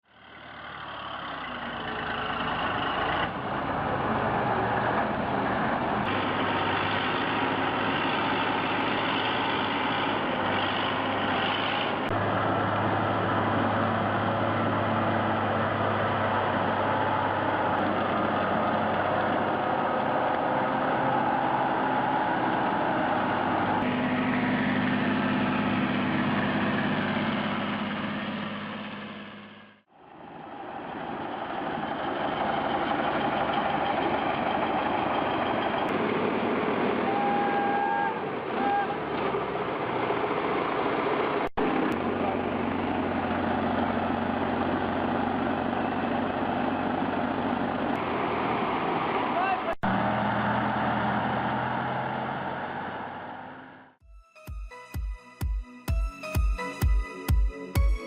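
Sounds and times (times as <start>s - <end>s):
heavy truck engines running: 0.1s - 54.0s.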